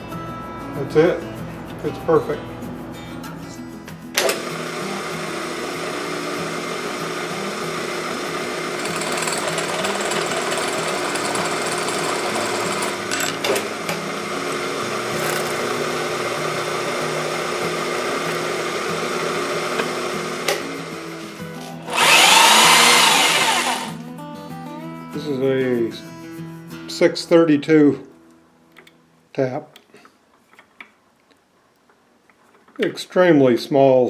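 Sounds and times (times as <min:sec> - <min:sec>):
metalworking machine running: 0:04.2 - 0:24.0.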